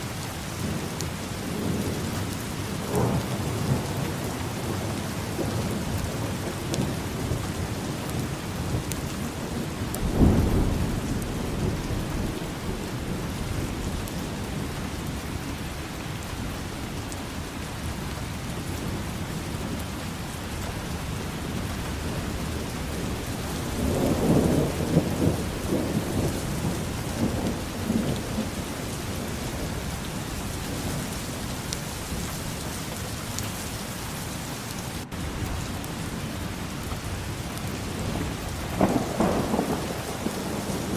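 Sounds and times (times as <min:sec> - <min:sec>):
heavy rain falling: 0:00.0 - 0:40.9
thunder: 0:02.7 - 0:08.9, 0:09.6 - 0:16.6, 0:21.5 - 0:31.2, 0:37.2 - 0:40.9.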